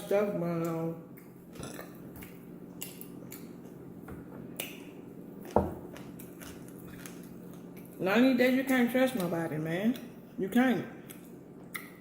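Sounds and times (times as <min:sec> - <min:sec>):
faint steady hum: 0:00.0 - 0:12.0
mouth chewing clicks and smacks: 0:00.6 - 0:03.8, 0:11.0 - 0:12.0.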